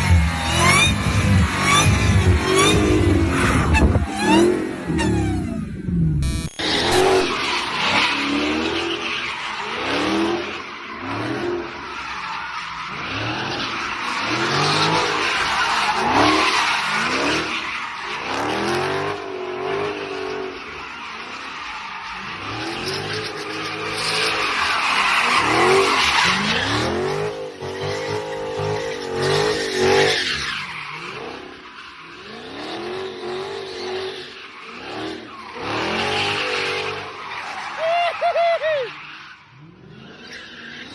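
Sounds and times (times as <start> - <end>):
car engine revving: 0.0 - 9.0
tyres squealing and skidding: 0.0 - 40.9.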